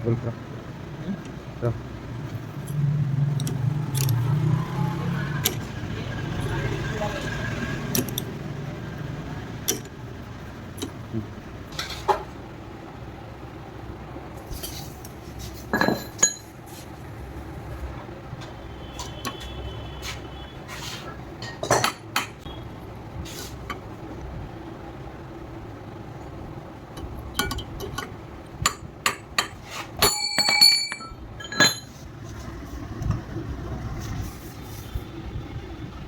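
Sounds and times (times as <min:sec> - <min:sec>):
metal tools clinking on engine parts: 0:15.5 - 0:16.6, 0:28.7 - 0:32.0
metallic ring: 0:15.7 - 0:16.5, 0:30.0 - 0:32.0.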